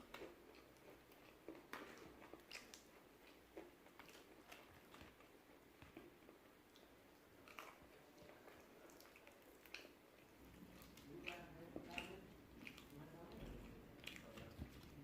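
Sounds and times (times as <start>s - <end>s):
chewing crispy food: 0.0s - 15.0s
wet mouth sounds: 8.9s - 15.0s.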